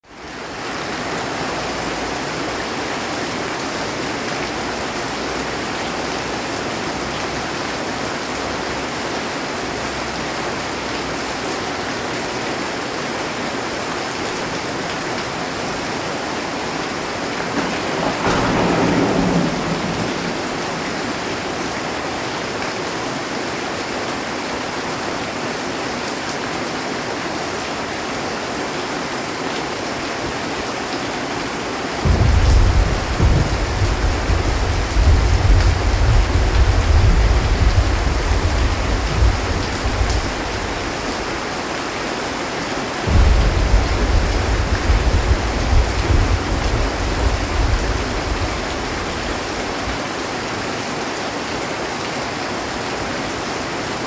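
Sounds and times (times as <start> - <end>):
heavy rain on a metal roof: 0.0 - 54.0
thunder rumble: 15.0 - 23.0, 32.0 - 41.8, 43.0 - 50.0.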